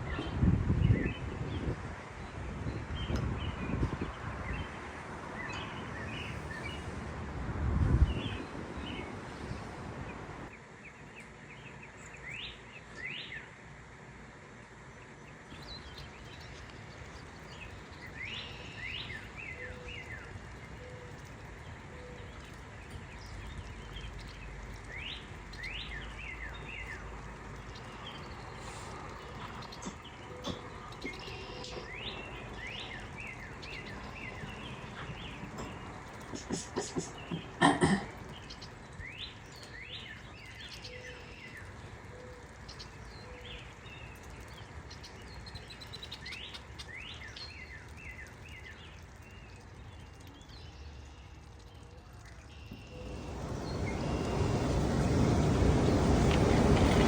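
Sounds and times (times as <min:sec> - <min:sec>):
wind buffeting microphone: 0:00.0 - 0:10.5, 0:52.9 - 0:57.0
small birds chirping: 0:14.9 - 0:57.0.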